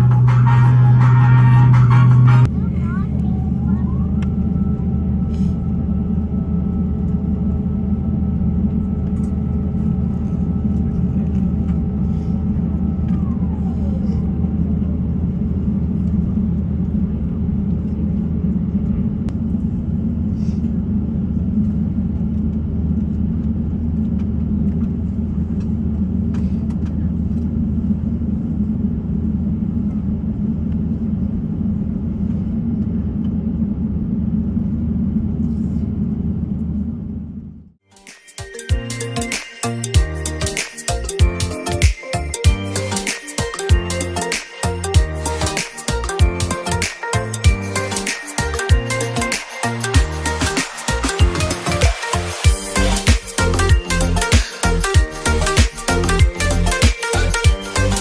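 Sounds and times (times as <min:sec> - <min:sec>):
high whine with falling pitch: 0:00.0 - 0:13.7, 0:42.2 - 0:58.0
airplane cabin drone: 0:00.0 - 0:37.8, 0:38.4 - 0:58.0.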